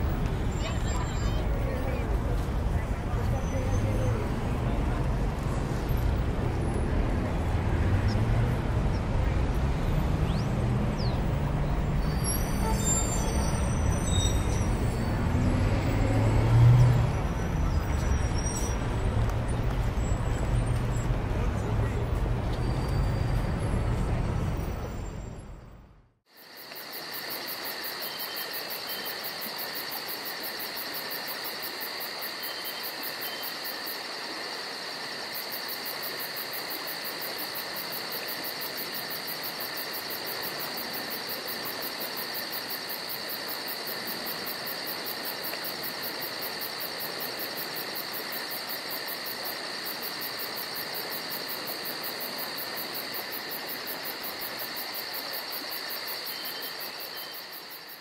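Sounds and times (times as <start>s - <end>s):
crickets trilling: 9.7s - 19.0s, 26.3s - 58.0s.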